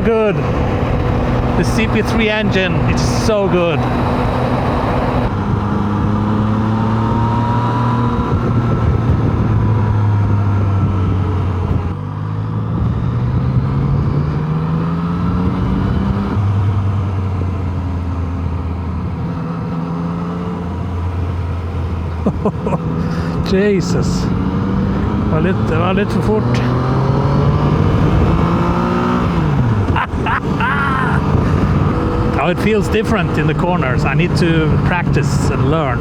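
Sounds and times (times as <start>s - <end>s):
motorcycle engine accelerating: 0.0s - 36.0s
wind rushing: 26.7s - 32.4s.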